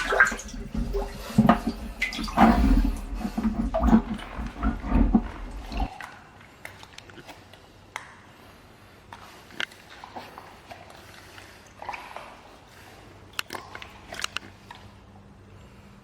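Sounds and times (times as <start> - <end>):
rubber boots squelching in water: 0.0 - 7.7.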